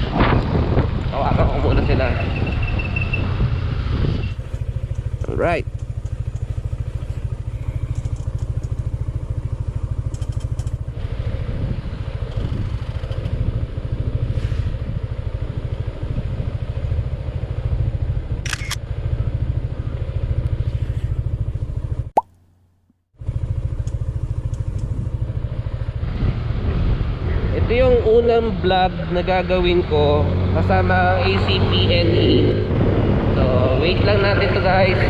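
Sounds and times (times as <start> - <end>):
motorcycle engine running: 2.3 - 22.2, 23.2 - 29.6.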